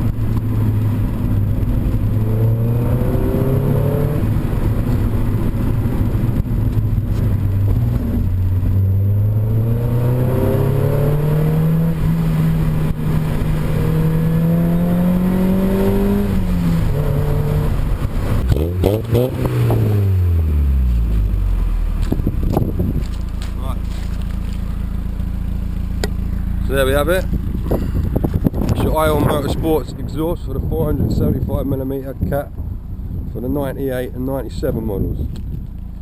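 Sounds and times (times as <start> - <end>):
car engine while driving: 0.0 - 36.0.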